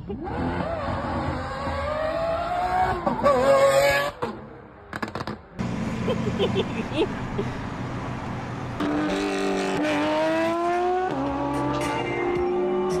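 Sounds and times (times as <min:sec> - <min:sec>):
sports car engine rumble and revving: 0:00.0 - 0:04.5, 0:05.6 - 0:13.0.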